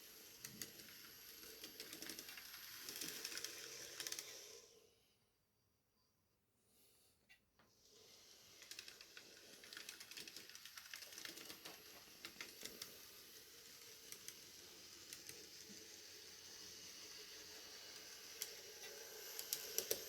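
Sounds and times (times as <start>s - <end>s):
wheels clicking on rails: 0.0s - 4.4s, 8.4s - 20.0s
model train whirring: 0.0s - 5.0s, 7.8s - 20.0s.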